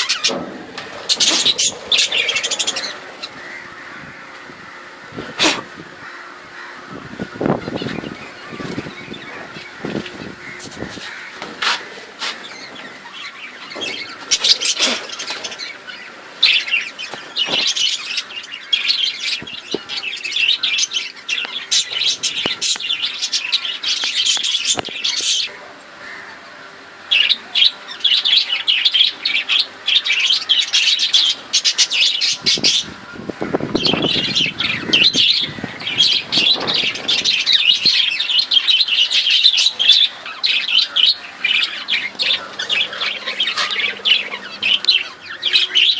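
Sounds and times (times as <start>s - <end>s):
budgerigars chattering and chirping: 0.0s - 45.9s.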